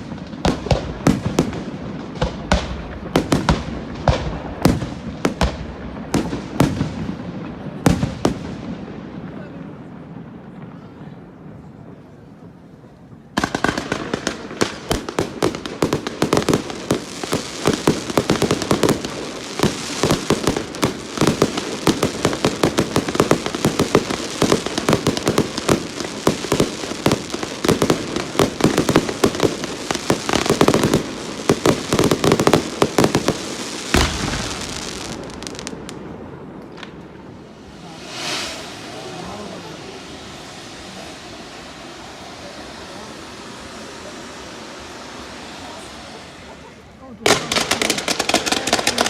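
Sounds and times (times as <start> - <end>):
fireworks bangs and crackling: 0.0 - 49.0
heavy low firework bang: 33.9 - 48.1.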